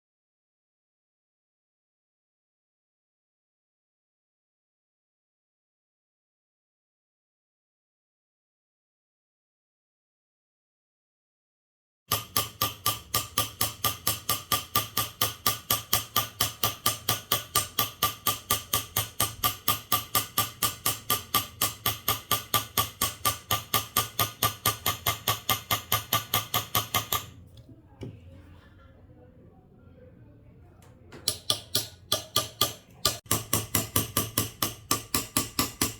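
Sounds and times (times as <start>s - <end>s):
mallet knocking on chisel: 12.1s - 27.3s, 31.1s - 35.9s.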